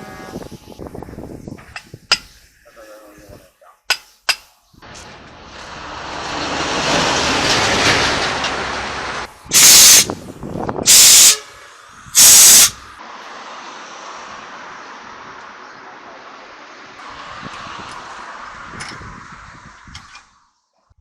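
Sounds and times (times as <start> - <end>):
rushing noise: 4.8 - 20.5
compressed air hisses: 9.5 - 10.2, 10.8 - 12.9.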